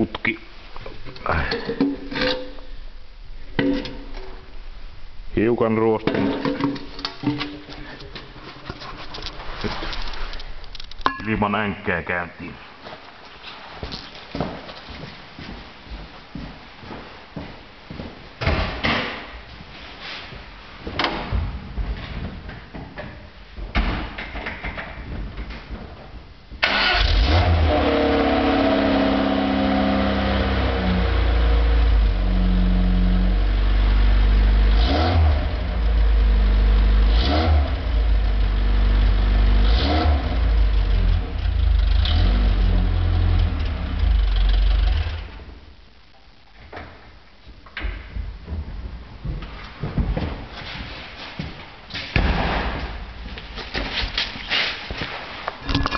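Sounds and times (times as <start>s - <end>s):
car engine starting and revving: 26.6s - 45.4s.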